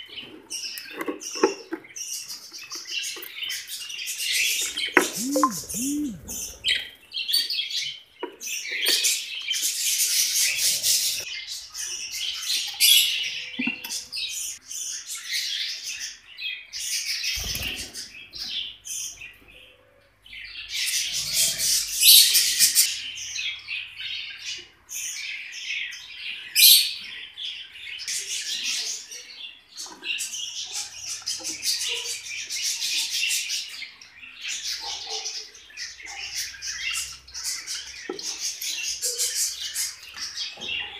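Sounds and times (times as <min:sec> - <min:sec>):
lovebirds chirping and chattering: 0:00.1 - 0:06.7.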